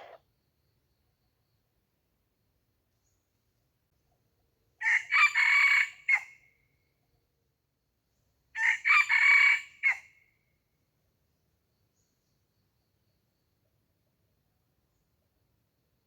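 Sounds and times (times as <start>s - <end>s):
rooster crowing: 4.8s - 6.3s, 8.6s - 10.0s.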